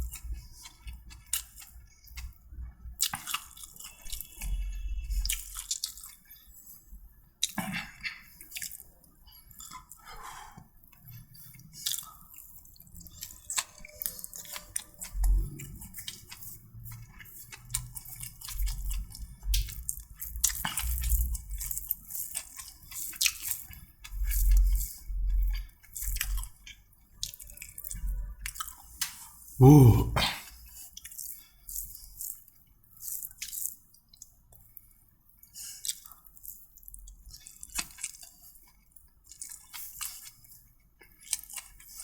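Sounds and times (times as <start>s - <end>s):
person chewing wetly: 0.0s - 42.0s.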